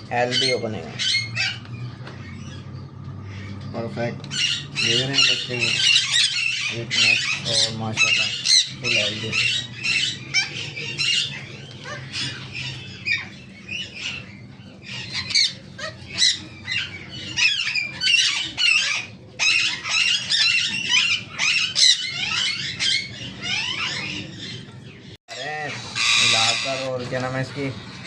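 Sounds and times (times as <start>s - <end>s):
parrots chirping and squawking: 0.0s - 28.0s.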